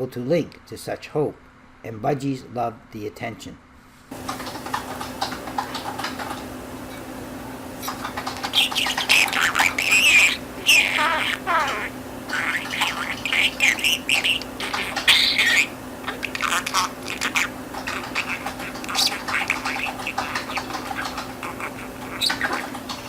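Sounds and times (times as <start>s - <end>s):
budgerigar chattering: 7.8s - 23.0s.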